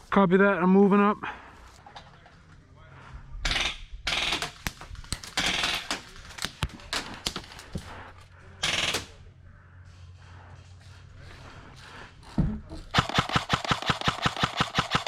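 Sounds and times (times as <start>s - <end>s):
airsoft guns firing full-auto bursts: 3.5s - 6.5s, 8.6s - 9.1s, 12.9s - 15.0s.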